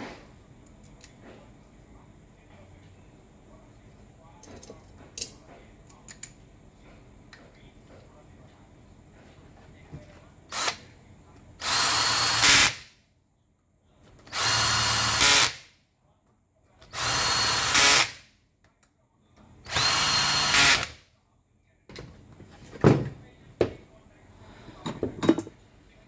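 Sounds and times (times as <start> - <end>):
power tool motor bursts: 11.6 - 12.8, 14.3 - 15.6, 16.9 - 18.2, 19.7 - 21.0.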